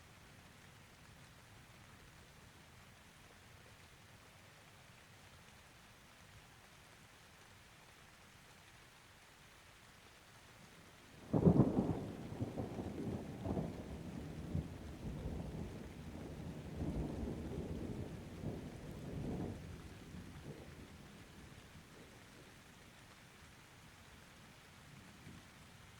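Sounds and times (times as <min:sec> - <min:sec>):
thunder rumbling: 0:11.3 - 0:21.0.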